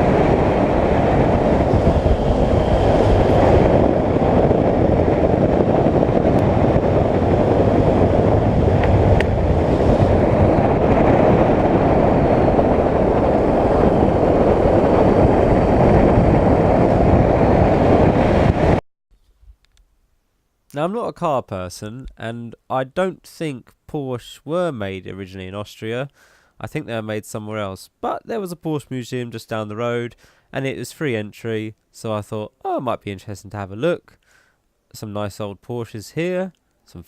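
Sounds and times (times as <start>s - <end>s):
wind and road noise: 0.0s - 18.8s.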